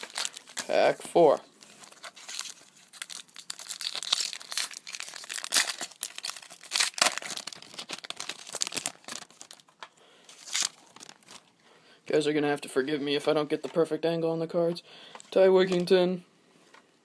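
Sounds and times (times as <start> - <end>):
foil wrapper tearing and crinkling: 0.0 - 0.8, 1.6 - 11.4.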